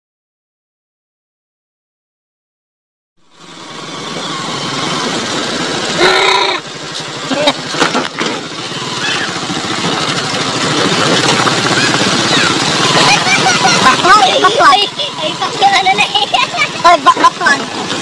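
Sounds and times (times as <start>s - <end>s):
motorcycle engine running: 3.2s - 18.0s
short pitched call: 6.0s - 6.6s
sharp knocks and rattles: 6.8s - 15.8s.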